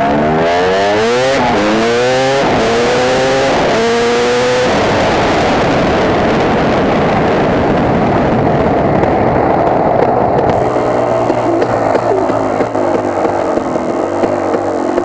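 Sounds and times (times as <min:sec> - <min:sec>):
dirt bike engine revving: 0:00.0 - 0:04.8, 0:10.5 - 0:15.0.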